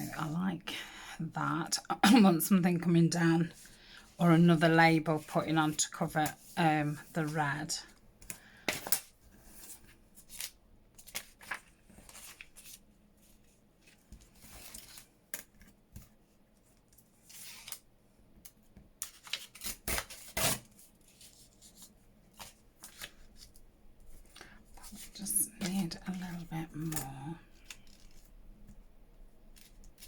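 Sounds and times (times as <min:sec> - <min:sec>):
paper rustling: 0:08.7 - 0:16.1, 0:20.8 - 0:28.8.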